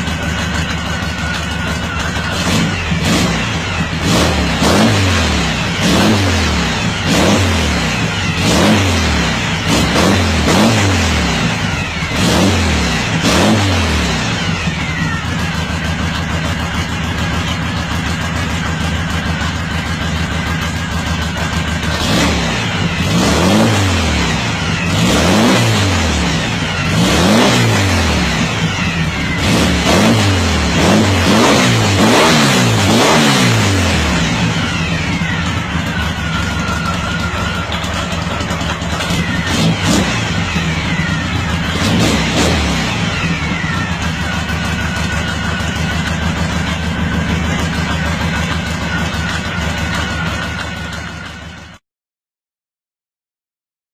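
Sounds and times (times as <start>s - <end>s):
car engine revving: 0.0s - 51.8s.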